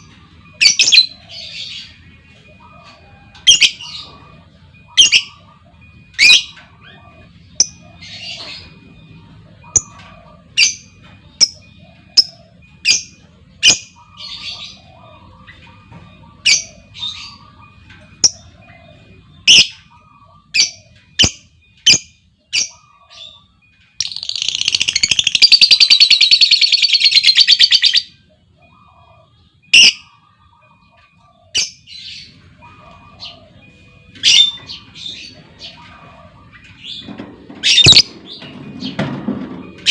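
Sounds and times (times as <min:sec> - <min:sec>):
lovebirds squawking chirps: 0:09.6 - 0:38.5.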